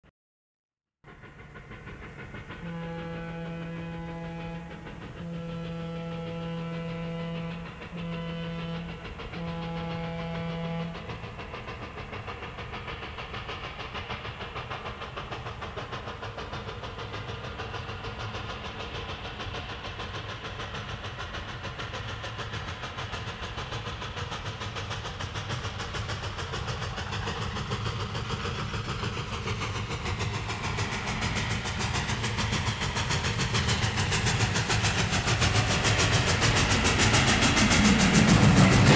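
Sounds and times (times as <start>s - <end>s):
train running rhythmically: 1.0s - 38.9s
train whistle: 2.6s - 11.1s.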